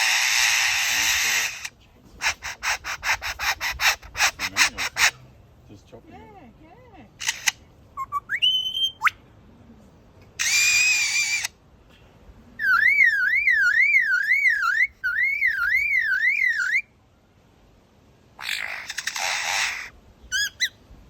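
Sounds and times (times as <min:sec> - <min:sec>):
harsh buzzy bird call: 0:00.0 - 0:05.2, 0:10.4 - 0:11.6, 0:12.6 - 0:16.9, 0:18.4 - 0:20.8
siren-like warbling whistle: 0:12.6 - 0:16.8.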